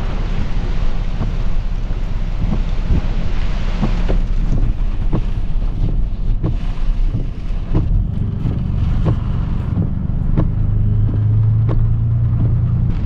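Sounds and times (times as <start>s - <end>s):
engine and road rumble: 0.0s - 13.0s
wind buffeting microphone: 0.0s - 13.0s
sharp irregular taps: 3.8s - 13.0s.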